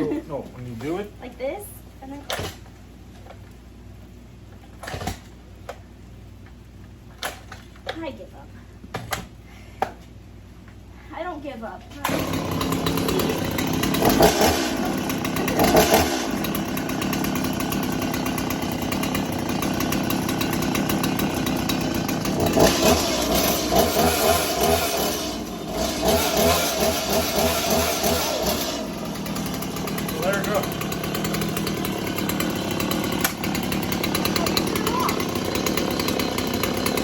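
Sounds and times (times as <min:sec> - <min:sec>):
chainsaw engine running: 0:12.0 - 0:37.0.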